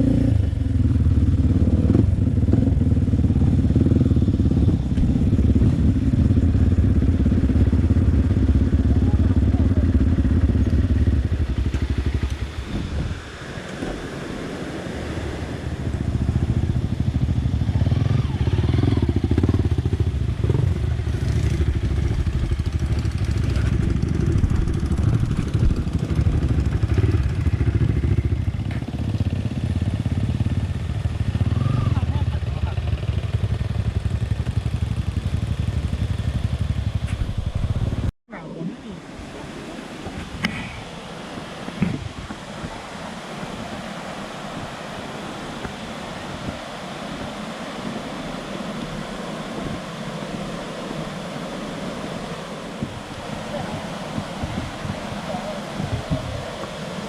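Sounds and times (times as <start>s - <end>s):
dirt bike engine running: 0.0s - 13.1s, 15.6s - 38.1s.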